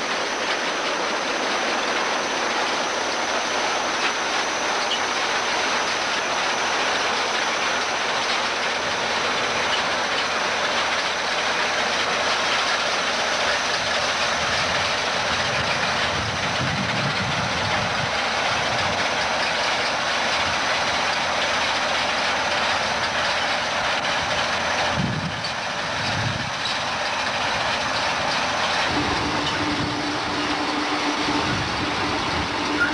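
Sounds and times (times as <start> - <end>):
mechanical rattle and clatter: 0.0 - 32.9
tractor running under load: 0.0 - 32.9.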